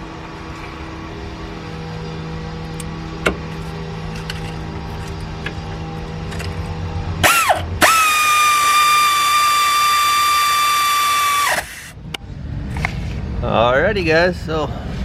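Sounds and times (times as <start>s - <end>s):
power tool motor whining: 7.2s - 12.0s.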